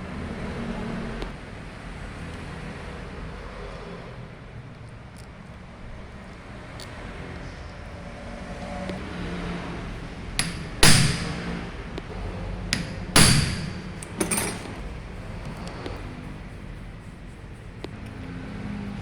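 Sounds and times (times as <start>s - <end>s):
steady background hum: 0.0s - 19.0s
loud metal strikes: 10.4s - 11.7s, 12.8s - 14.8s
light metal clicks: 12.8s - 16.0s.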